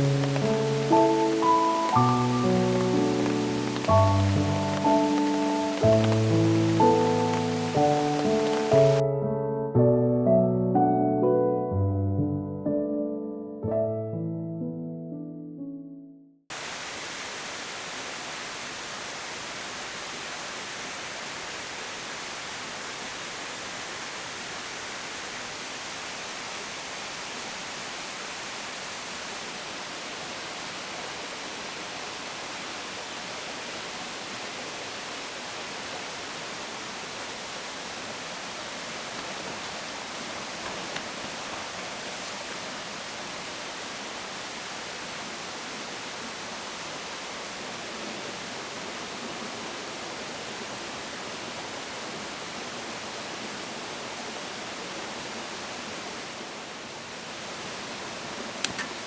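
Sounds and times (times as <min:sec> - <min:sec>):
water rushing: 0:00.0 - 0:09.0, 0:16.5 - 0:59.0.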